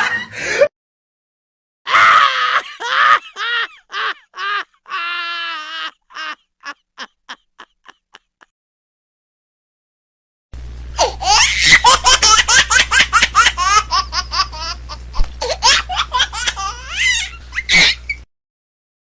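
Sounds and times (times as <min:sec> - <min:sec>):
high-pitched laughter: 0:01.9 - 0:08.5, 0:11.0 - 0:18.3
low steady hum: 0:10.6 - 0:18.3.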